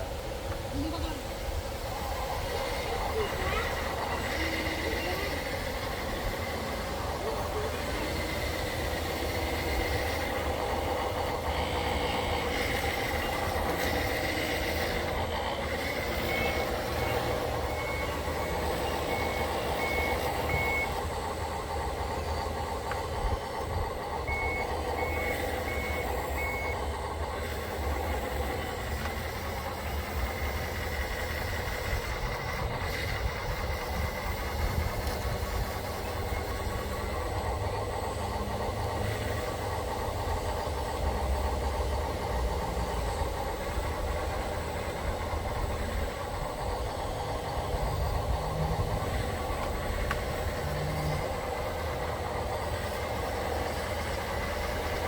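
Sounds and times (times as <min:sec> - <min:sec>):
rc construction machines droning: 0:00.0 - 0:55.0
back-up alarm beeping: 0:02.0 - 0:32.1.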